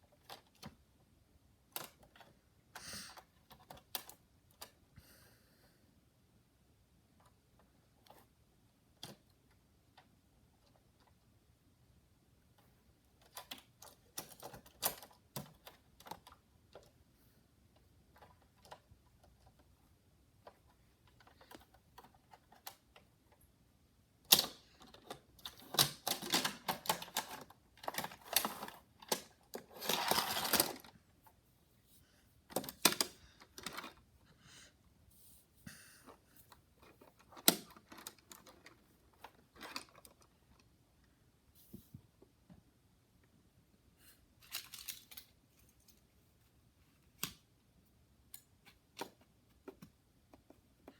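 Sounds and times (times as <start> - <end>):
toy cars and track clattering: 24.3 - 30.9.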